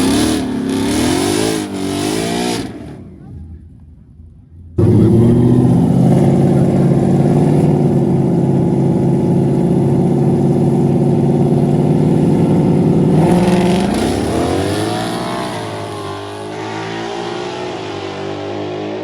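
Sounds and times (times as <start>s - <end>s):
car engine revving high: 0.0s - 3.1s, 4.8s - 19.0s.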